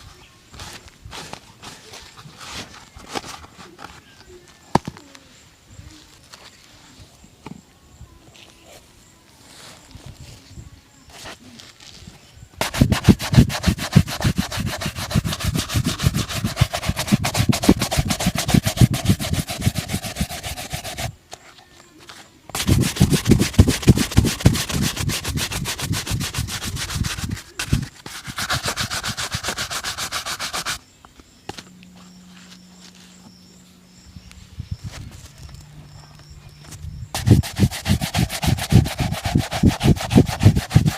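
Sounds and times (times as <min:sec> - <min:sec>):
brush scrubbing shoe: 0:12.6 - 0:21.1, 0:22.5 - 0:30.8, 0:37.2 - 0:40.9
faint low hum: 0:14.4 - 0:40.8.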